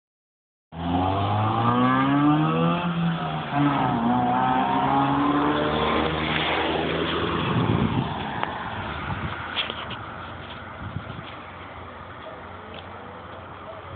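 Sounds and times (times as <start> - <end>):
car engine accelerating hard: 0.8 - 10.4.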